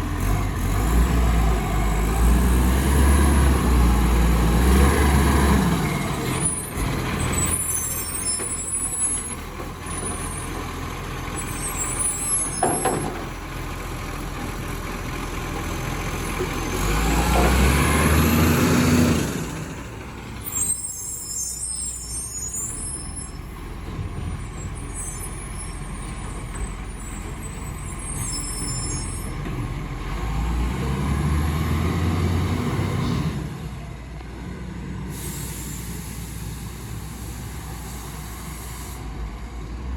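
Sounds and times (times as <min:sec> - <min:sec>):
truck diesel engine running: 0:13.0 - 0:20.6
air brake hisses: 0:35.1 - 0:39.3.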